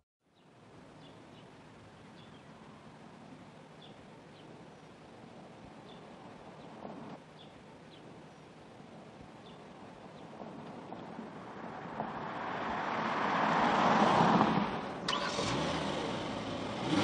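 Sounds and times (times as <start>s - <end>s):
car driving past: 11.4s - 17.0s.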